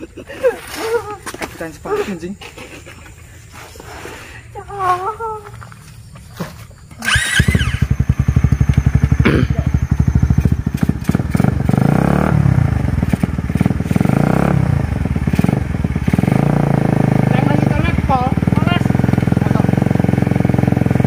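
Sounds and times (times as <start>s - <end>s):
dirt bike engine starting: 6.4s - 21.0s
dirt bike engine revving: 6.9s - 21.0s.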